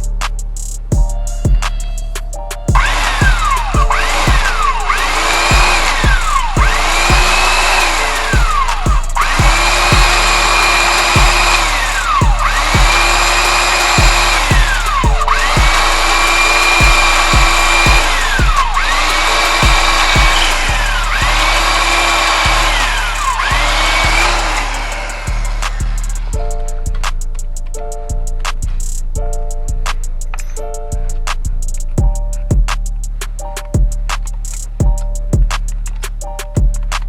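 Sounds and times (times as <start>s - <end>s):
background music with steady beat: 0.0s - 37.0s
electric drill whining in bursts: 2.8s - 26.3s.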